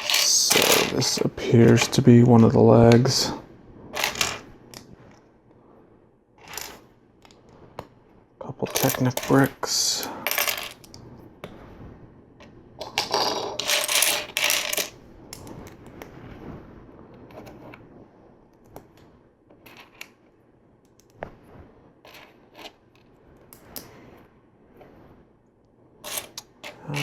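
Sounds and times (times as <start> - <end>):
plastic bricks clattering: 0.0 - 3.2, 4.0 - 4.8, 12.8 - 14.9.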